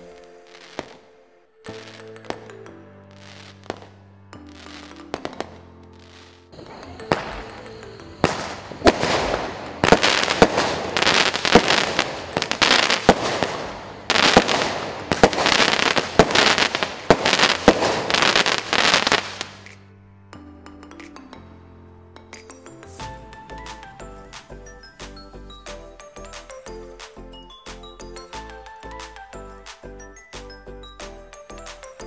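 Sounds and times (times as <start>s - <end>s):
faint background music: 0.0s - 32.0s
firework bangs with crackle: 4.6s - 19.7s
firework rising hiss: 22.8s - 25.3s.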